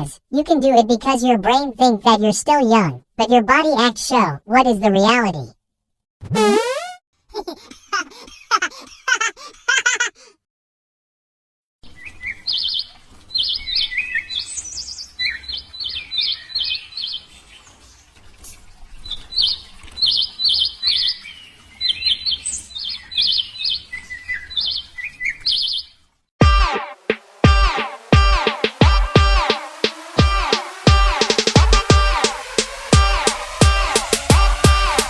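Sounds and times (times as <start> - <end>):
small birds chirping: 11.8 - 26.1.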